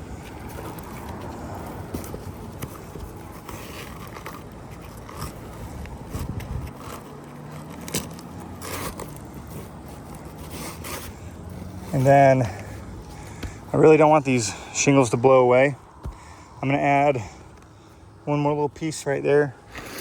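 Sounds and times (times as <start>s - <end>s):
shingles scraping and crackling: 0.2s - 11.2s, 19.7s - 20.0s.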